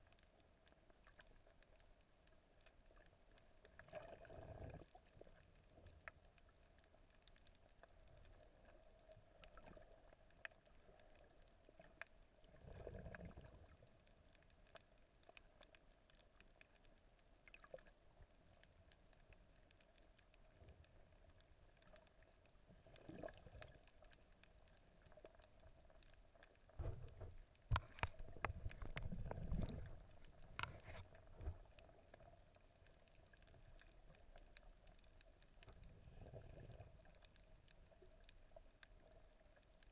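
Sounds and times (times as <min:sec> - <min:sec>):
sharp underwater clicks: 0:23.0 - 0:32.2.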